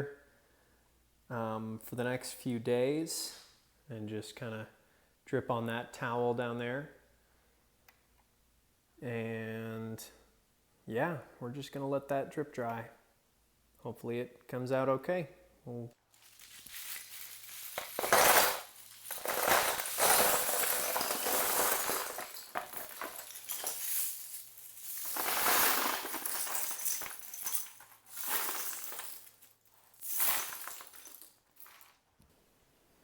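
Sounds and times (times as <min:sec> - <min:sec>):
plastic toy bricks clattering: 0:16.2 - 0:27.7.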